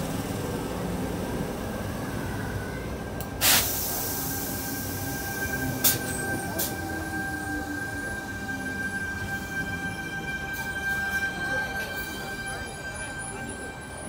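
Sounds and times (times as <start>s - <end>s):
electric train whine: 0.0s - 14.0s
air hiss: 3.4s - 6.7s.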